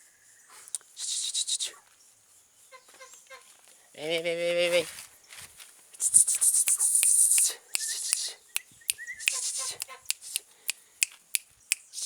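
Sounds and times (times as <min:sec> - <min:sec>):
tongue clicks: 0:00.7 - 0:01.7, 0:06.0 - 0:12.0
hissed psst bursts: 0:00.9 - 0:01.8, 0:05.9 - 0:10.8, 0:11.7 - 0:12.0
kissing sounds: 0:06.0 - 0:12.0.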